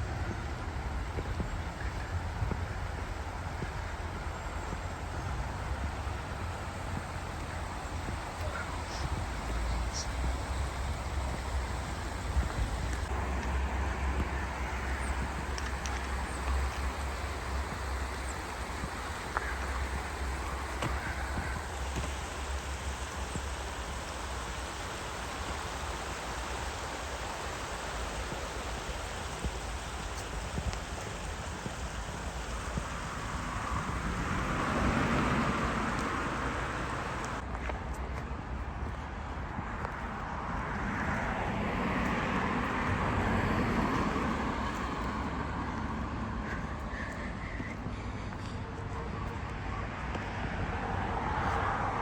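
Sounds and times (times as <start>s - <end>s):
vehicle passing on road: 0.0s - 52.0s
river rushing: 2.8s - 37.4s.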